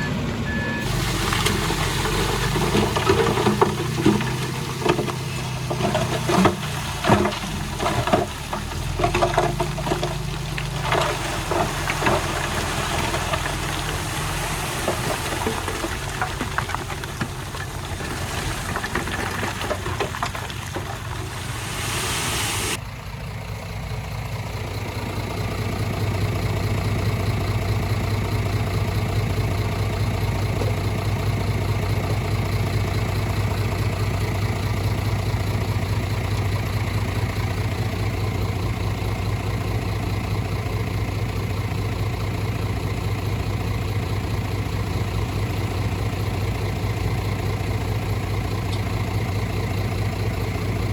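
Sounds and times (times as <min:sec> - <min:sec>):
heavy diesel engine droning: 0:00.0 - 0:50.9
rushing noise: 0:21.0 - 0:22.8.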